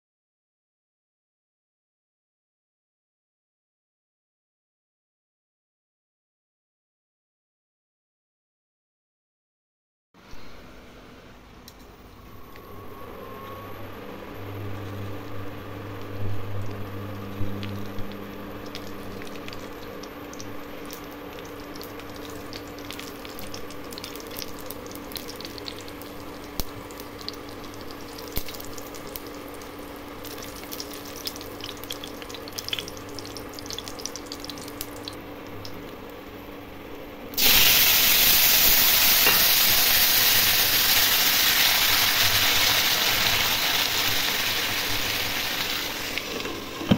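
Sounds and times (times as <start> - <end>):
low steady hum: 10.2 - 39.6
chilli sizzling in hot oil: 14.7 - 36.1, 37.4 - 46.9
potatoes frying hiss: 15.9 - 36.1, 37.4 - 46.9.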